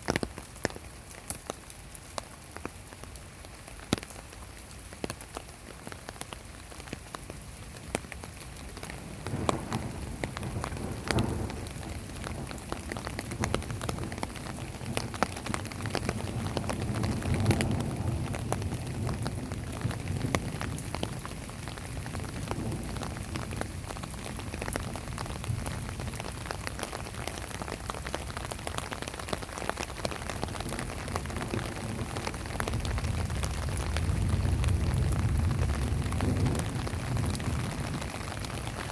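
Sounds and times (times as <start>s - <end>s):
heavy rain falling: 0.0s - 38.9s
distant thunder rumbling: 9.1s - 26.4s, 30.4s - 38.8s.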